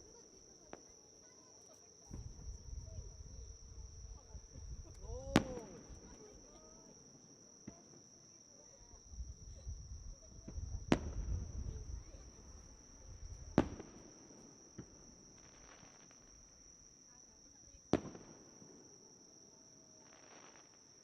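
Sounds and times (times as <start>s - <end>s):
faint fireworks cracks: 0.0s - 9.6s, 10.2s - 16.5s, 17.5s - 21.0s
insects chirring: 0.0s - 21.0s
fireworks bangs: 2.0s - 6.7s, 10.4s - 16.4s, 17.9s - 18.8s.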